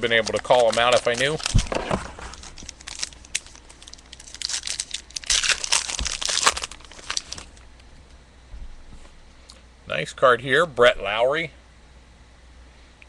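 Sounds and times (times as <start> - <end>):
plastic wrapper crinkling and tearing: 0.0 - 7.7.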